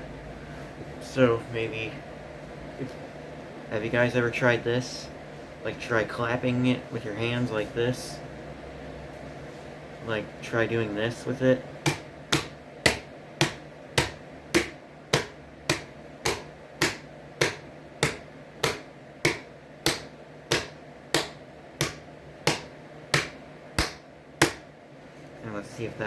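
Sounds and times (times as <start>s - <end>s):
hands slapping fan blade: 11.8s - 24.7s.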